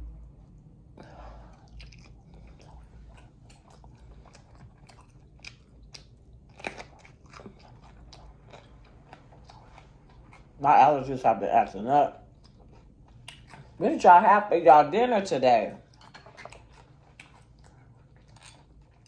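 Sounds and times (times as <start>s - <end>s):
person chewing and biting food: 1.4s - 10.6s, 12.2s - 13.8s, 15.8s - 19.0s
food crunching: 1.5s - 13.8s, 15.7s - 19.0s.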